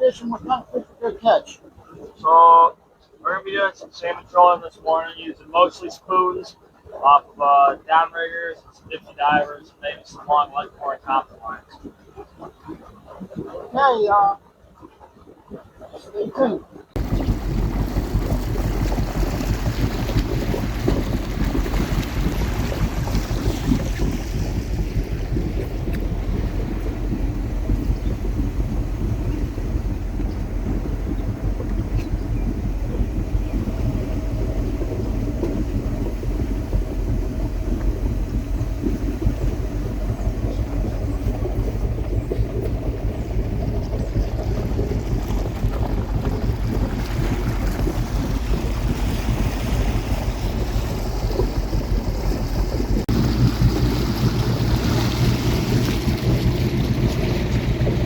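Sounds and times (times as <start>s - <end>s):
boat engine humming: 0.0s - 58.0s
wind rushing over microphone: 17.0s - 58.0s.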